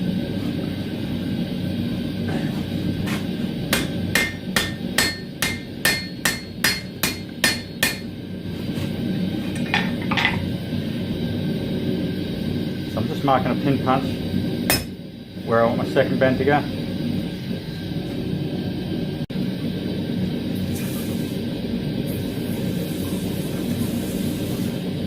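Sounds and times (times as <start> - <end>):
hammer blows on anvil: 3.7 - 8.2, 14.7 - 15.0.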